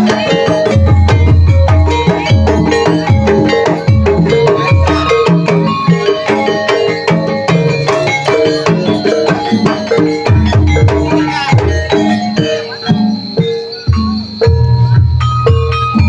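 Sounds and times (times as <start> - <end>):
struck tuned keys: 0.0 - 16.0.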